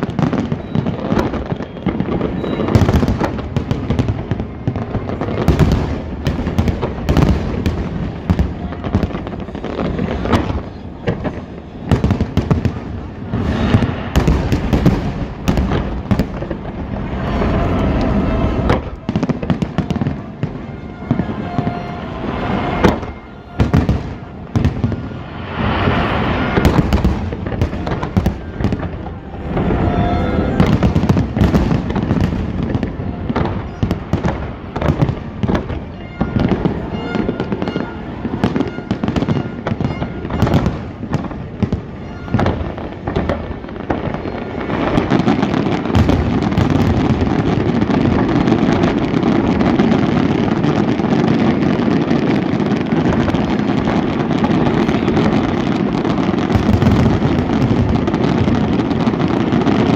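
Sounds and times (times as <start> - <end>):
fireworks bursting and crackling: 0.0 - 59.9.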